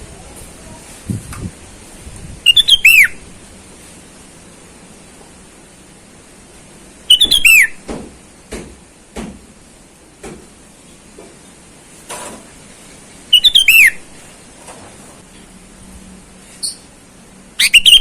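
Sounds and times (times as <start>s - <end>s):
bird singing whistled notes: 2.4s - 3.2s, 7.1s - 7.8s, 13.3s - 14.0s, 17.6s - 18.0s.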